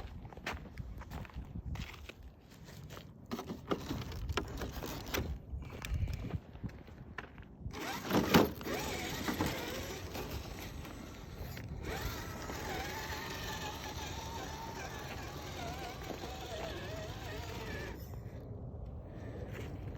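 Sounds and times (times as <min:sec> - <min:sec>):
electric motor and gearbox whining: 0:07.7 - 0:18.4.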